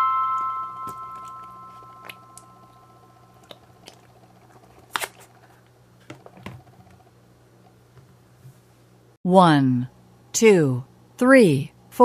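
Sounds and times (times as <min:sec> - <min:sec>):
chime tone: 0:00.0 - 0:03.2.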